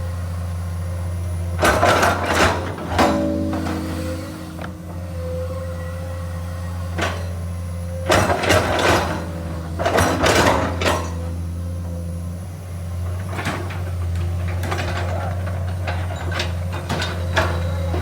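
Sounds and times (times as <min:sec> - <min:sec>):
excavator diesel engine humming: 0:00.0 - 0:18.0
rattling and scraping: 0:01.7 - 0:05.1.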